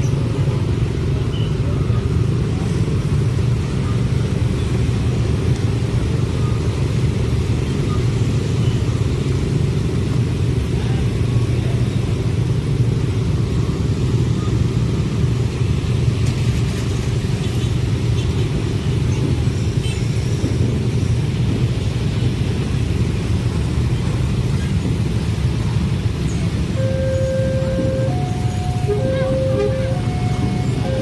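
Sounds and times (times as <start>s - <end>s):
train rolling past: 18.9s - 31.0s.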